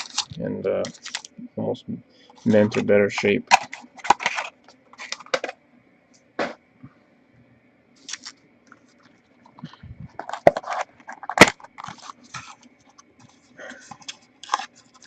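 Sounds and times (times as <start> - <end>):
cards scraping and clicking: 0.0 - 1.3, 2.3 - 5.6, 10.2 - 15.0
foil wrapper crinkling: 0.0 - 1.3, 2.4 - 5.5, 8.0 - 12.7, 13.6 - 15.0.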